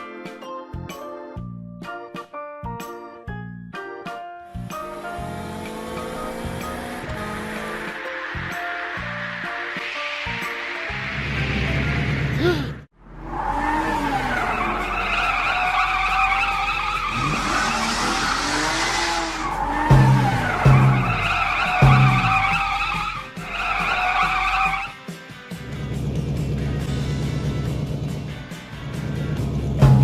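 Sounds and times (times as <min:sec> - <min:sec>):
background music: 0:00.0 - 0:30.0
cartoon tyre screech: 0:13.2 - 0:25.0
sharp thumps: 0:16.4 - 0:23.2.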